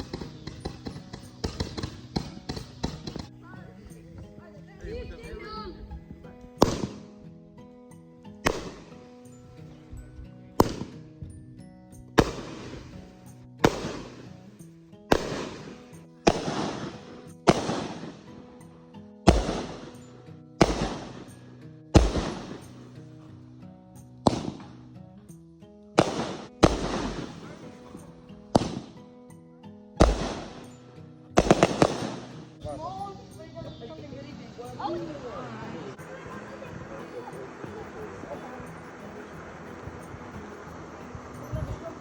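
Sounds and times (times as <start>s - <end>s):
fireworks bangs with crackle: 0.0s - 3.3s, 6.6s - 7.2s, 8.4s - 9.1s, 10.6s - 11.0s, 12.2s - 14.5s, 15.1s - 18.5s, 19.3s - 21.4s, 22.0s - 23.0s, 24.2s - 24.8s, 26.0s - 29.0s, 30.0s - 30.8s, 31.4s - 33.4s
background music: 0.0s - 42.0s.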